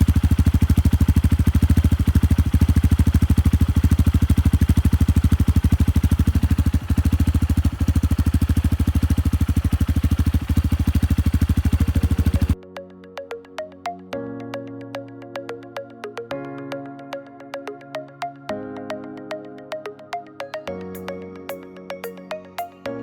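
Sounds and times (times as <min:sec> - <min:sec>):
motorcycle engine idling: 0:00.0 - 0:12.6.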